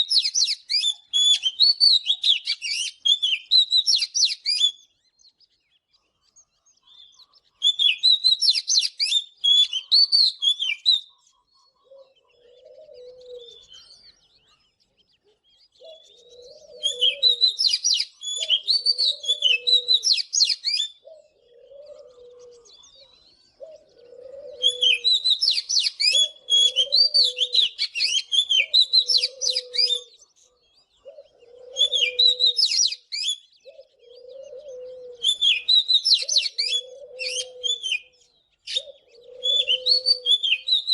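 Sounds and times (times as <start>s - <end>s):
bird singing whistled phrases: 0.0s - 4.9s, 7.0s - 11.2s, 15.8s - 21.0s, 24.6s - 30.2s, 31.8s - 33.9s, 35.2s - 40.9s.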